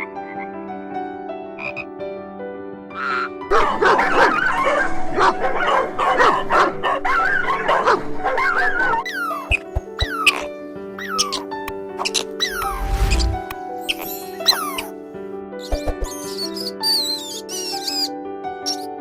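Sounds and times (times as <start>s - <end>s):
background music: 0.0s - 19.0s
dogs yipping and barking: 3.0s - 15.0s, 15.6s - 18.1s.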